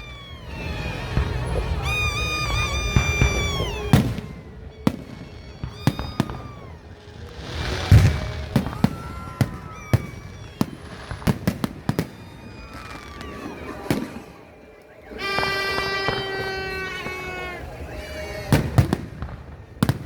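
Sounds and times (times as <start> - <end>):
fireworks bangs and pops: 0.0 - 20.0
heavy firework boom: 0.2 - 14.4.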